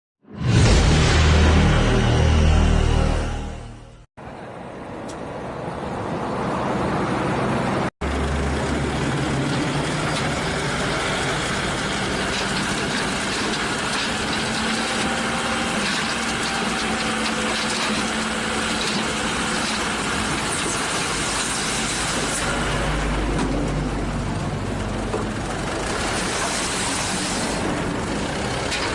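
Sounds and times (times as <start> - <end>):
intro music: 0.3 - 4.1
heavy diesel engines running: 1.0 - 28.9.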